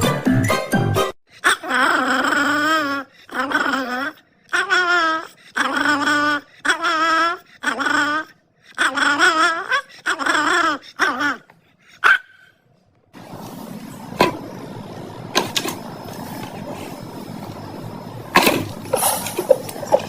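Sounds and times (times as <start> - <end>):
dog whining: 1.3 - 12.6, 18.4 - 20.0
dog yelp: 7.7 - 12.6
steady noisy background: 13.2 - 20.0.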